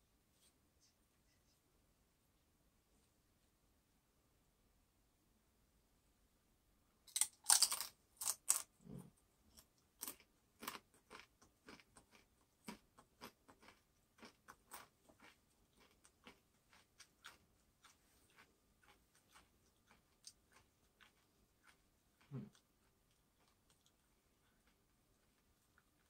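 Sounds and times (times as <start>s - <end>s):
crunching tortilla chip: 7.1s - 8.8s
chewing crunches: 7.1s - 26.0s.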